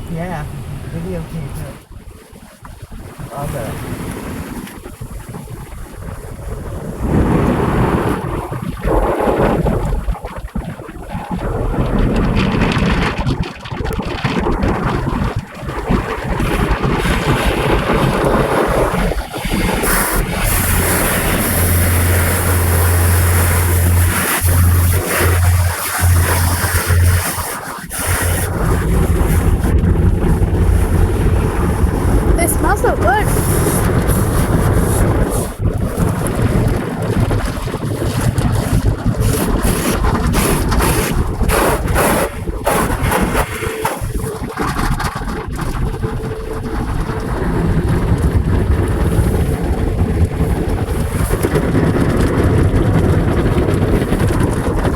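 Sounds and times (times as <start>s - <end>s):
car wash water jets pounding: 0.0s - 54.9s
steady low hum: 19.8s - 35.7s.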